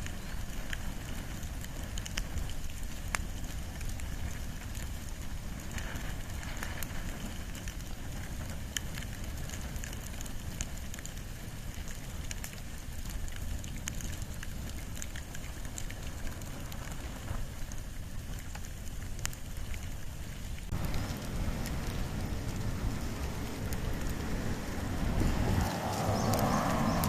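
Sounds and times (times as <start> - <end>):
open fire crackling and popping: 0.0 - 27.0
low rumble: 20.7 - 27.0.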